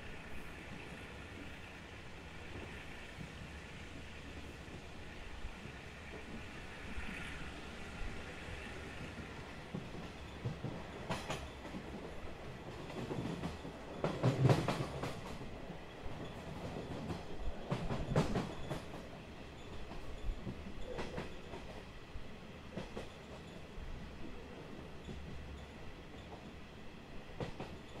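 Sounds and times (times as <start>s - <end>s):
wheels clacking over rail joints: 8.4s - 21.9s.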